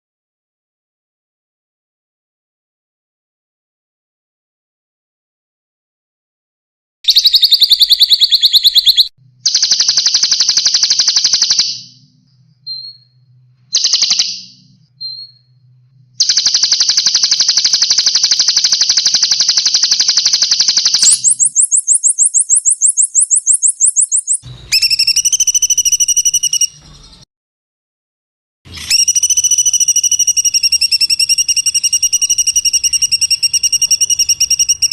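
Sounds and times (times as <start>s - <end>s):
fast buzzing bird trills: 7.1s - 12.0s, 16.2s - 26.8s, 28.9s - 34.9s
sharp ringing bird calls: 7.1s - 13.2s, 13.8s - 15.6s, 16.2s - 27.2s, 28.9s - 34.9s
rapid high bird notes: 16.2s - 27.2s.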